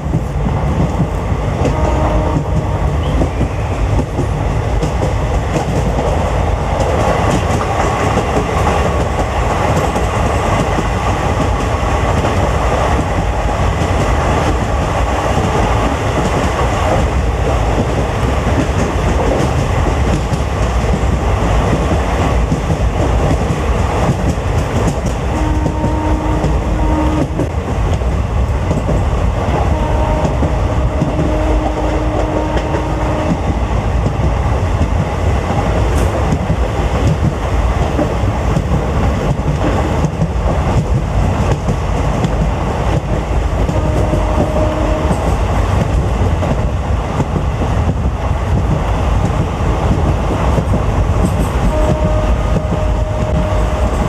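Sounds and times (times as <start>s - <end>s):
passenger train rumble: 0.0s - 54.0s.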